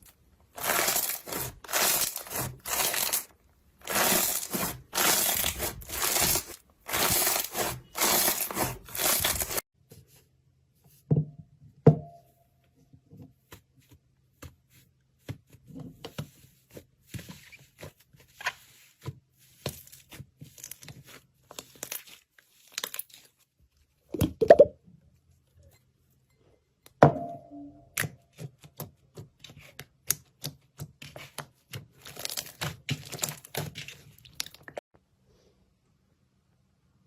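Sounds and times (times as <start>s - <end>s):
slime crunching: 0.0s - 9.6s.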